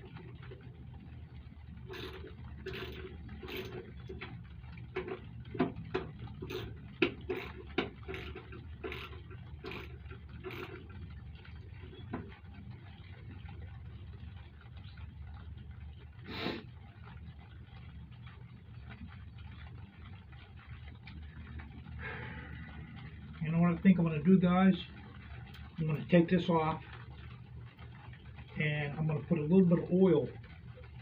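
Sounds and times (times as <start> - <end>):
low steady hum: 0.0 - 31.0
metal tool clicks and scrapes: 1.9 - 4.3, 6.4 - 10.8.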